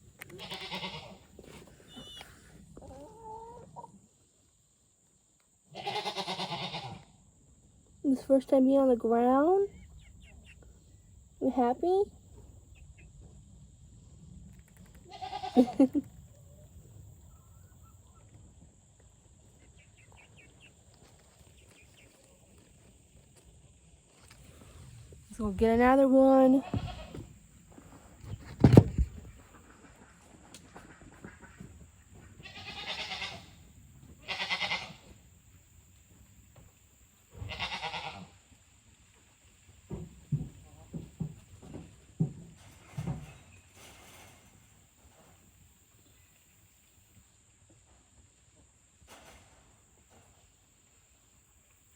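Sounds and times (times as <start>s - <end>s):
bleat-like animal call: 0.3s - 1.2s, 5.7s - 7.0s, 15.1s - 15.8s, 32.4s - 33.5s, 34.2s - 35.0s, 37.4s - 38.3s.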